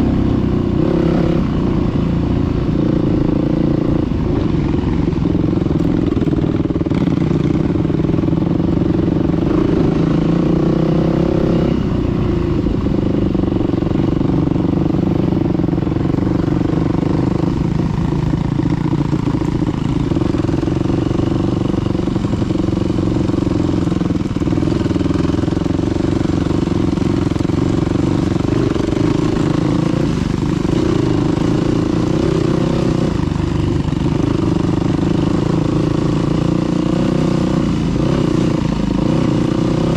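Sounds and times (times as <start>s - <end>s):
dirt bike engine under throttle: 0.0s - 39.9s.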